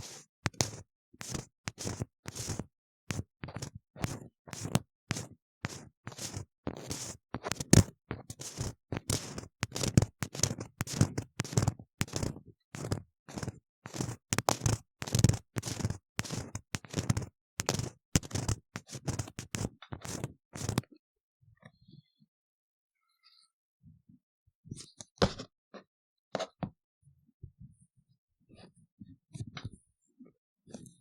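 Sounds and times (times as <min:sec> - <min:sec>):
tool scraping inside ear model: 0:00.0 - 0:20.9.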